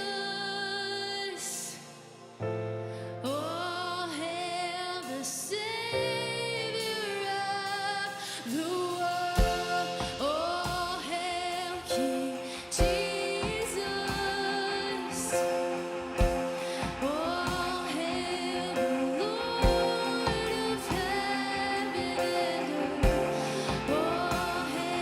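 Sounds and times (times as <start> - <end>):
woman singing worship song: 0.0 - 25.0
sustained keyboard chords: 9.1 - 25.0
band playing: 9.3 - 25.0
deep drum hits: 23.0 - 25.0.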